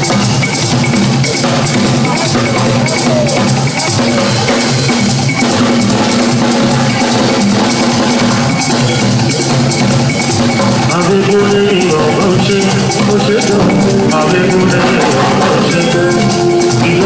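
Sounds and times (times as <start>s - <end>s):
drums and percussion: 0.0s - 17.0s
pitched instrument notes: 0.0s - 17.0s
sustained bass: 5.5s - 17.0s.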